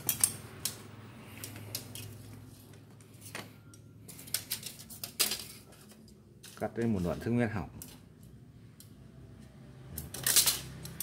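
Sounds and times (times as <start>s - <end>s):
metal tools clinking: 3.1s - 7.0s, 10.0s - 11.0s.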